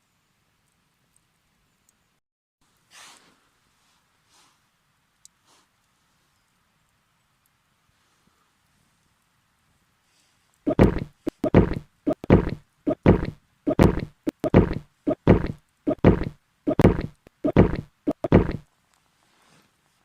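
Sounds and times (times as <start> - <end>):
heavy knocks: 10.7 - 18.6.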